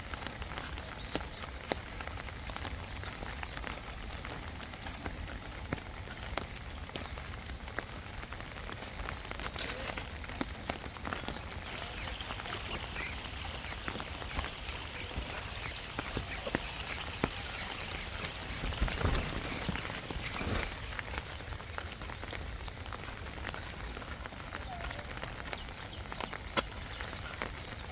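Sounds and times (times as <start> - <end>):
light rain falling: 0.0 - 27.9
small bird calling high notes: 11.7 - 21.3.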